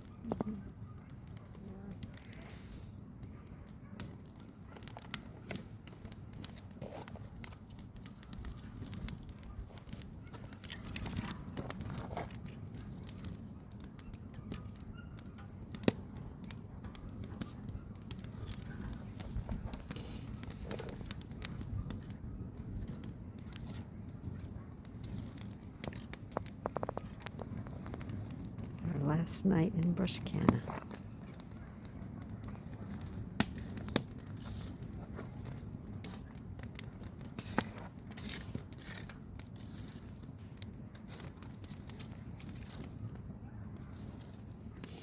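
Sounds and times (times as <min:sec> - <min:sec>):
campfire crackling and popping: 0:00.0 - 0:45.0
low fire rumble: 0:00.0 - 0:45.0.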